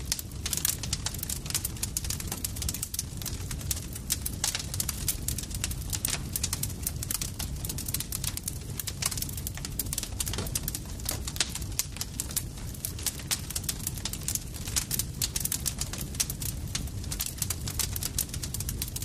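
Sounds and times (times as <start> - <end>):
campfire crackling: 0.0 - 19.0
low rumble of flames: 0.0 - 19.0.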